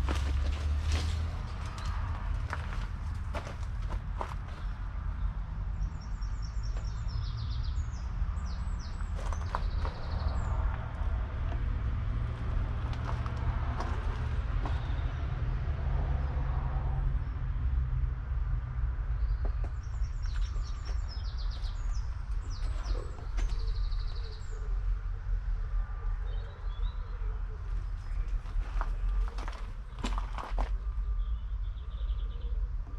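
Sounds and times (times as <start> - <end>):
diesel tractor engine rumbling: 0.0 - 32.0
birds chirping: 1.6 - 11.7, 12.4 - 15.4, 19.1 - 25.1.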